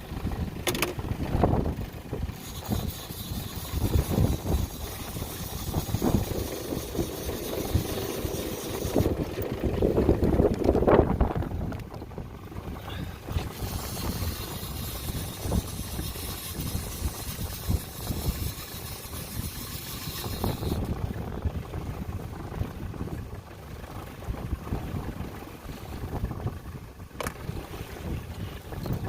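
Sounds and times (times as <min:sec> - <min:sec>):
wind buffeting the microphone: 0:00.0 - 0:29.0
water hissing around a boat: 0:02.2 - 0:09.2, 0:12.8 - 0:21.0.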